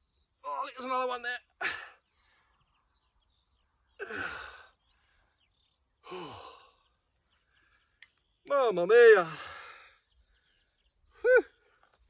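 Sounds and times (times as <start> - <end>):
man groaning exhalations: 4.0 - 4.7, 6.0 - 6.8.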